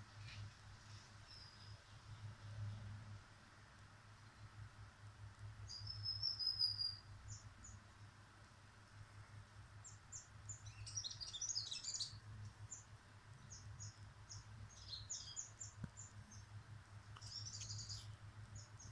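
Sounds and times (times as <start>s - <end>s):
small birds chirping: 0.2s - 2.1s, 5.6s - 8.1s, 9.7s - 18.9s.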